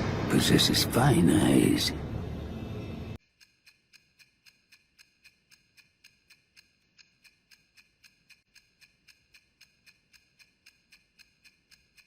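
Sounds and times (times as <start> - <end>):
faint steady ticking: 3.2 - 12.0.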